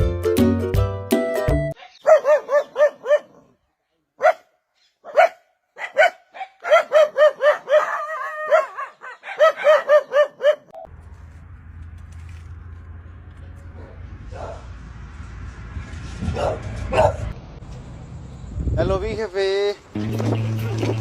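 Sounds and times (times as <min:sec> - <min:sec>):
dog yapping and barking: 0:01.8 - 0:03.5, 0:04.2 - 0:10.9, 0:16.3 - 0:17.4.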